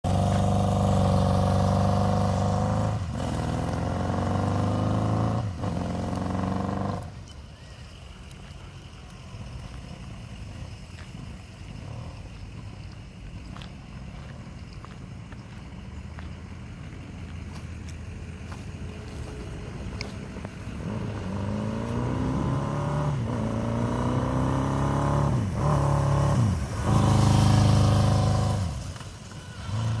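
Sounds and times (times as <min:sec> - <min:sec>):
motorcycle engine accelerating: 0:00.0 - 0:07.2, 0:16.2 - 0:30.0.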